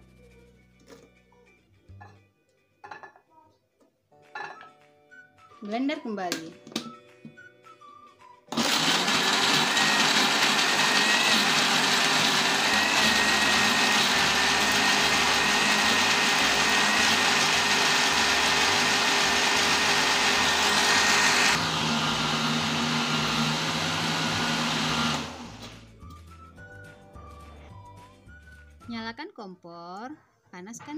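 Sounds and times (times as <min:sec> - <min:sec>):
blender grinding paste: 0:08.5 - 0:25.8.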